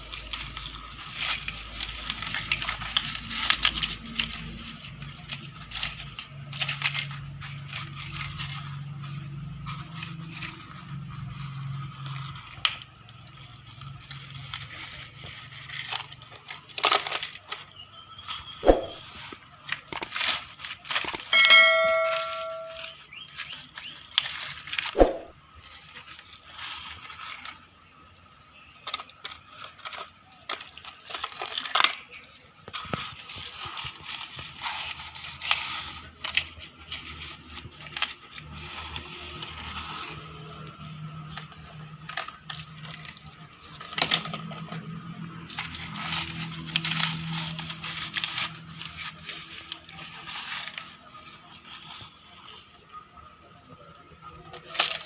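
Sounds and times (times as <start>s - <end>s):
metal crackling and scraping: 0.0s - 55.0s
bell-like metallic ring: 21.2s - 23.0s.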